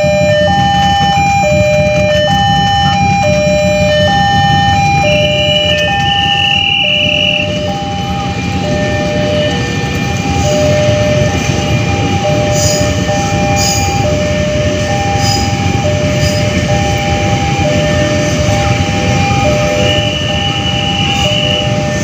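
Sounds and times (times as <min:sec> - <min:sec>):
electric train rumbling past: 0:00.0 - 0:22.0
two-tone crossing alarm: 0:00.0 - 0:22.0.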